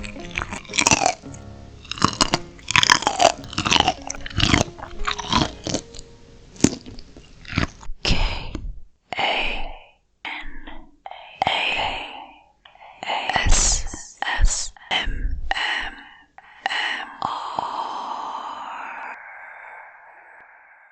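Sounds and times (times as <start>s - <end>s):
crunchy biting and chewing: 0.0s - 8.0s.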